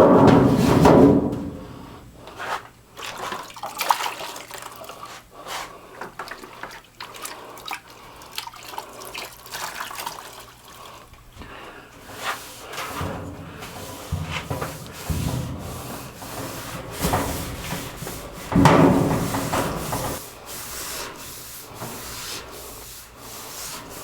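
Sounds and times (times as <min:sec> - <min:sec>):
wet scrubbing and wiping: 0:00.3 - 0:07.7, 0:12.0 - 0:24.0
wash of water: 0:12.2 - 0:20.2.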